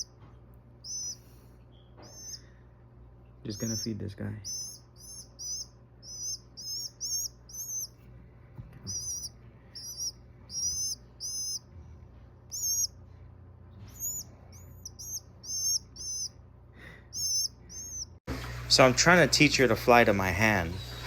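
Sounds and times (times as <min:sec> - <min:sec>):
young bird peeping: 0:00.0 - 0:00.2, 0:00.8 - 0:08.0, 0:08.8 - 0:11.8, 0:12.4 - 0:13.2, 0:13.8 - 0:18.2.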